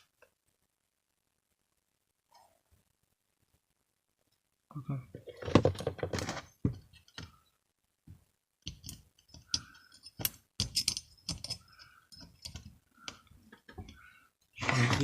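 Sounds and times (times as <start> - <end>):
metal parts clicking and knocking: 8.6 - 14.0.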